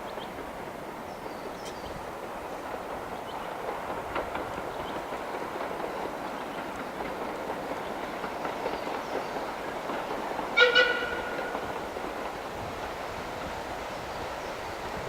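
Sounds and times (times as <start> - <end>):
steam train rumbling past: 0.0 - 15.0
steam whistle blasts: 10.6 - 11.5.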